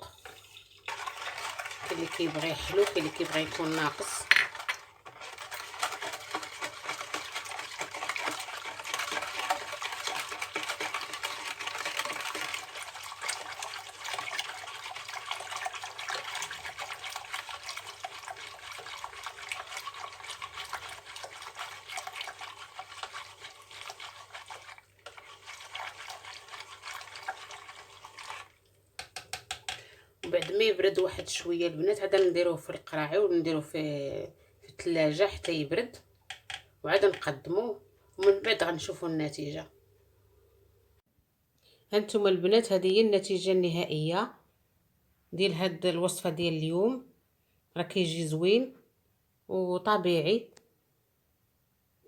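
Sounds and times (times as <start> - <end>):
liquid swishing: 0.0 - 32.4.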